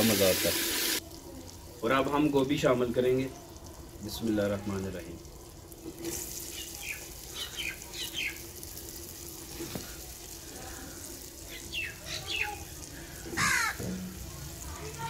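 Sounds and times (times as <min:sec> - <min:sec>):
spices sizzling in a clay pot: 0:00.0 - 0:15.0
birds calling: 0:06.5 - 0:08.5, 0:11.5 - 0:13.9.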